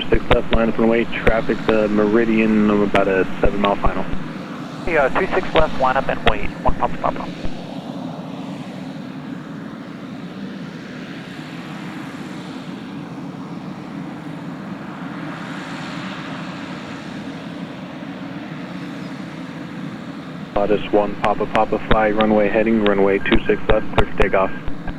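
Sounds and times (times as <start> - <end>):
turbine whine: 0.0 - 11.0, 18.8 - 24.9
turboprop engine drone: 0.0 - 24.9.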